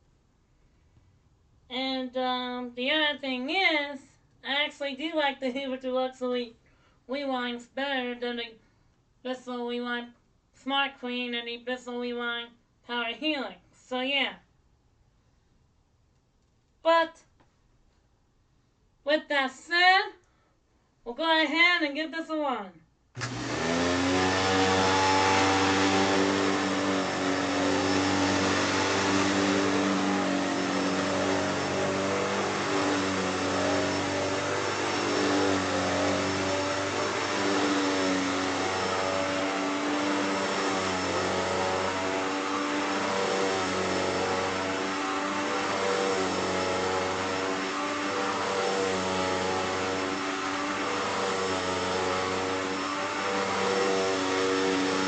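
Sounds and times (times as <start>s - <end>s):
vacuum cleaner running: 23.2s - 55.0s.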